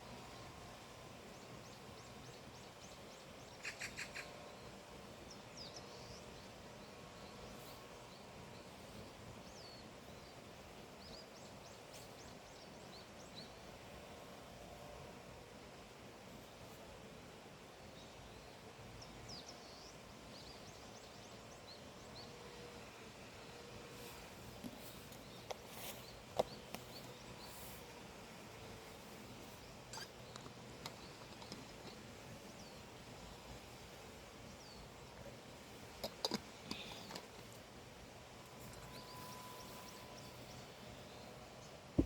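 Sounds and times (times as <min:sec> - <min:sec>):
faint background hiss: 0:00.0 - 0:42.0
bird chirping: 0:02.8 - 0:04.3
birds chirping: 0:28.9 - 0:33.0, 0:36.0 - 0:37.4.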